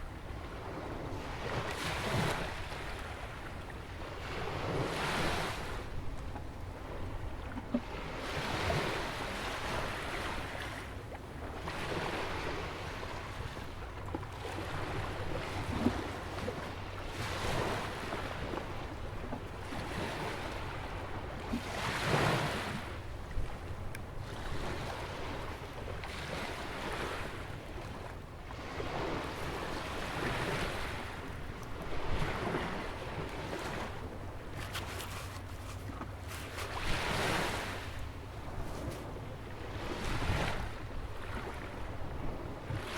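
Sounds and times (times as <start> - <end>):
waves breaking on a beach: 0.0 - 42.9
wind rumble on microphone: 0.0 - 42.9.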